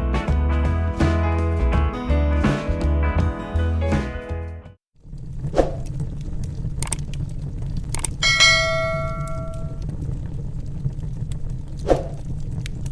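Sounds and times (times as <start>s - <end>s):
bell-like ding: 8.2s - 9.8s.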